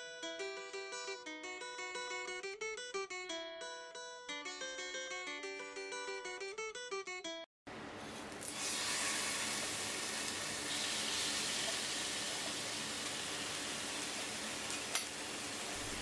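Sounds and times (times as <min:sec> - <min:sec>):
chicken sizzling in frying pan: 0:08.4 - 0:16.0.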